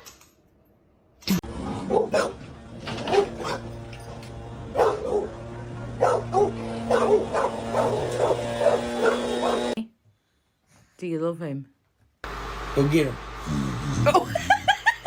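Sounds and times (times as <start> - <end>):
dog barking and yipping: 1.7 - 3.8, 4.7 - 9.8.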